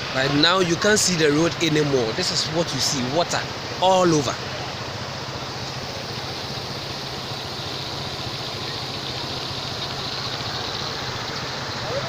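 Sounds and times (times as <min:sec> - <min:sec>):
floodwater rushing: 0:00.0 - 0:12.0
low hum: 0:05.2 - 0:11.8.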